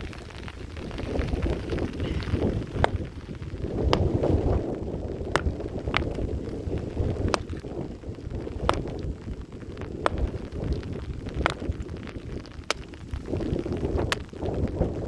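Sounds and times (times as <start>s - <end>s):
wind buffeting microphone: 0.0s - 15.0s
sharp ticks: 1.2s - 4.1s, 5.2s - 13.4s.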